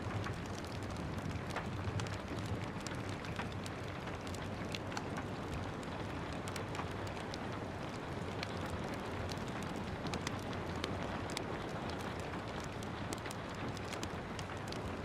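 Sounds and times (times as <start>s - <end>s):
steady rain: 0.0s - 15.0s
wood fire crackling: 0.0s - 15.0s.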